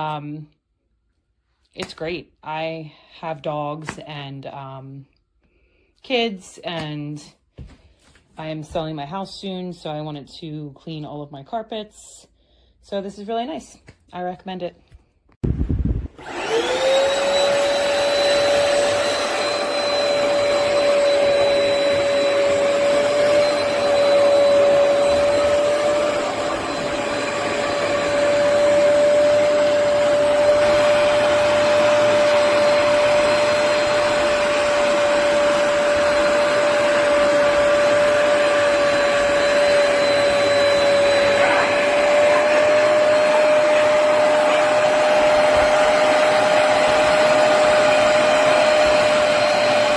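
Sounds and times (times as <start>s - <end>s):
carpet cleaner motor whine: 16.2s - 49.9s.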